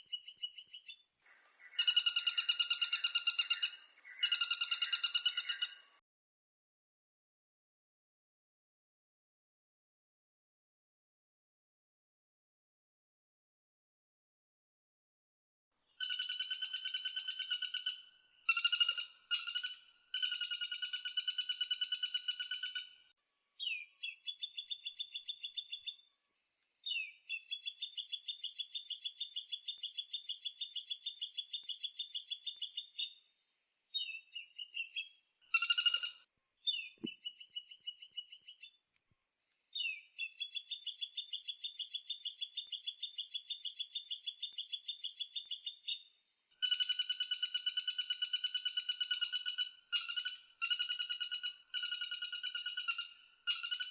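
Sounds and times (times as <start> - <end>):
woodpecker rattling trills: 1.7 - 5.9, 16.0 - 23.0, 46.6 - 53.9.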